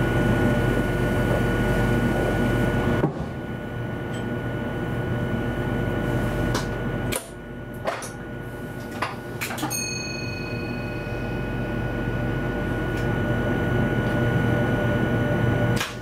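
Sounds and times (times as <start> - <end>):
train running hum and rumble: 0.0 - 16.0
high-pitched electrical tone: 9.7 - 13.8.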